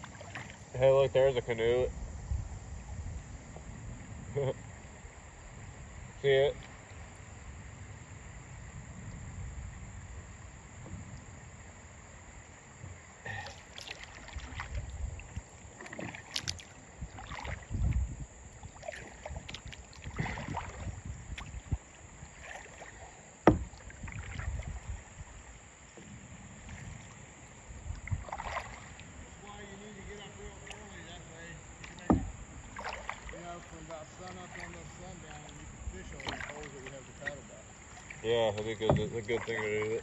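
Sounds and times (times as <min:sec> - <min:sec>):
paddle knocking against kayak: 0:00.0 - 0:01.8, 0:12.8 - 0:40.0
paddle splashing in water: 0:00.0 - 0:40.0.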